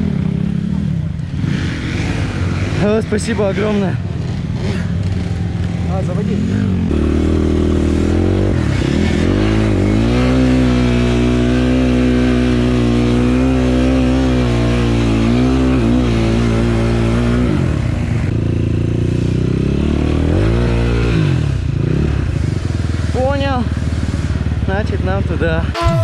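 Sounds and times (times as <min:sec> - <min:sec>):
motorcycle engine revving: 0:00.0 - 0:18.3.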